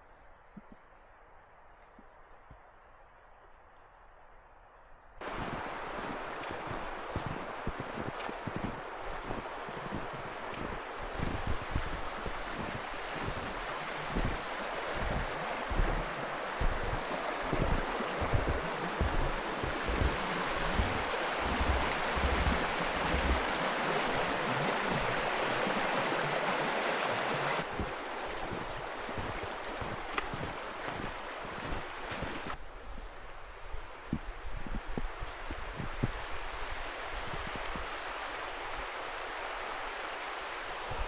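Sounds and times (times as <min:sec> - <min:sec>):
wind buffeting microphone: 0:05.2 - 0:26.0, 0:33.7 - 0:38.0
steady rushing outdoor noise: 0:05.2 - 0:32.6.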